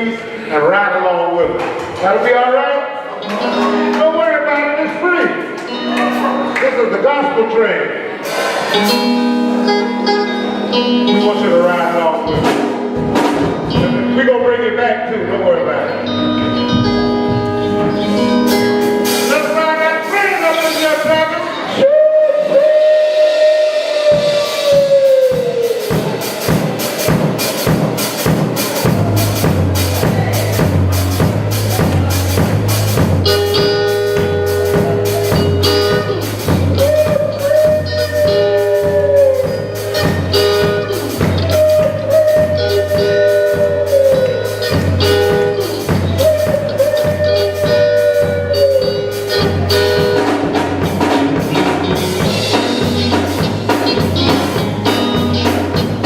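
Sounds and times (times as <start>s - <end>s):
bass line: 8.2s - 56.0s
drums fast beat: 22.3s - 56.0s
held bending high note: 33.3s - 50.3s.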